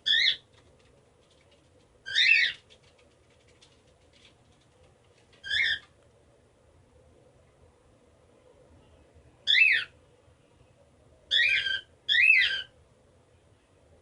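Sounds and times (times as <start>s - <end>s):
cockatiel whistled chirps: 11.3s - 12.7s.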